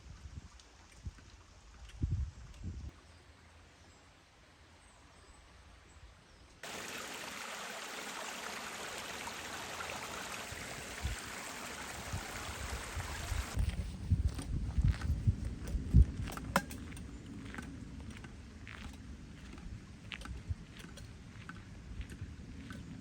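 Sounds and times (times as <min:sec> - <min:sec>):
running water rushing: 0:06.6 - 0:13.6.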